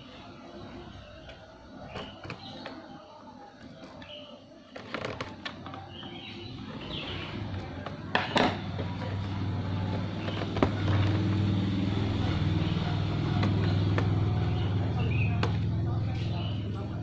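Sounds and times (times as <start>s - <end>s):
vehicle engine running: 6.4s - 17.0s.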